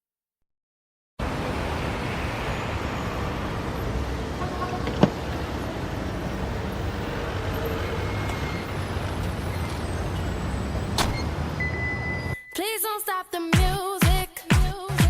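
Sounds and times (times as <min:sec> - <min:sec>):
road traffic rumble and hiss: 0:01.2 - 0:12.4.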